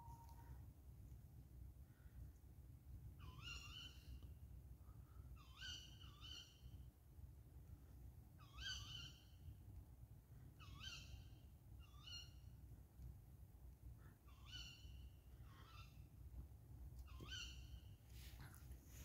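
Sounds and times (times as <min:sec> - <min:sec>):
faint low rumble: 0:15.0 - 0:19.0.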